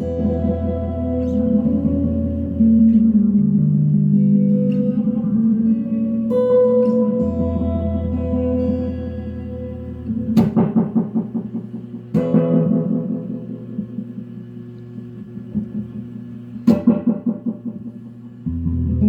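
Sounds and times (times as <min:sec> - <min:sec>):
guitar with tape echo: 0:00.0 - 0:19.0.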